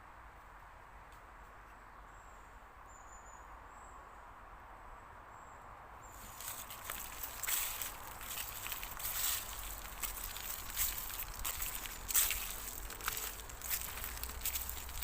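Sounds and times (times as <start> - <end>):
loud crackling and rustling: 6.2 - 15.0.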